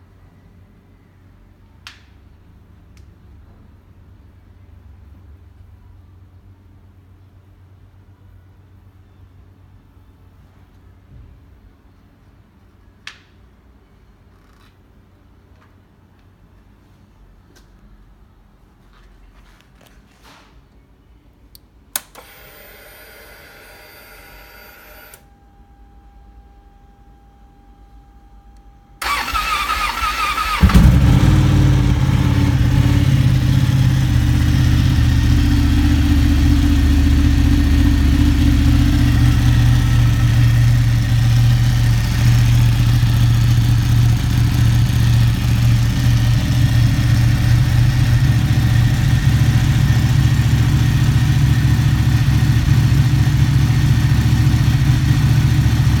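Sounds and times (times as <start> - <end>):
starter motor cranking: 29.0 - 31.4
motorcycle engine idling: 29.0 - 56.0.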